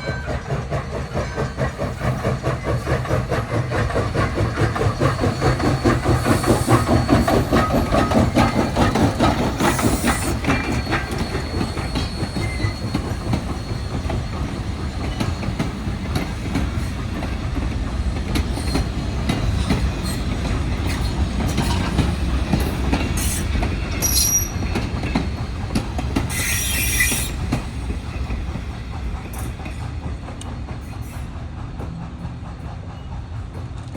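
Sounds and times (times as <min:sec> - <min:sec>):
train wheels clattering over rail joints: 0:00.0 - 0:33.9
high wheel squeals: 0:04.6 - 0:16.1, 0:23.1 - 0:25.4, 0:26.3 - 0:27.7.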